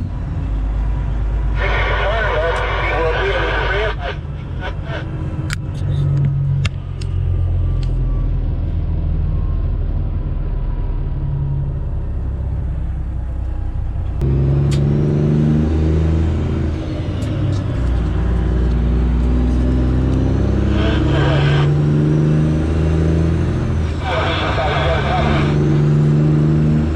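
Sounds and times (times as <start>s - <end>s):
diesel truck engine running: 0.0s - 26.9s.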